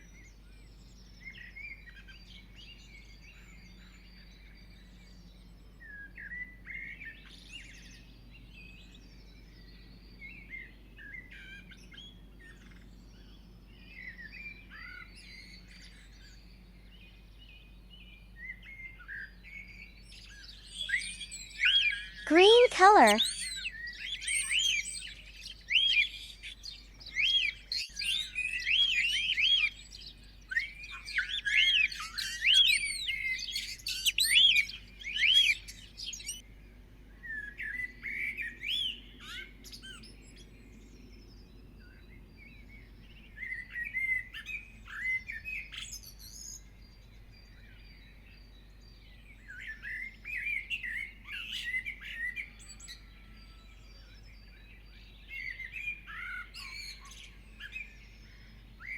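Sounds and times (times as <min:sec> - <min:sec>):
songbirds chirping: 0:45.2 - 0:58.9.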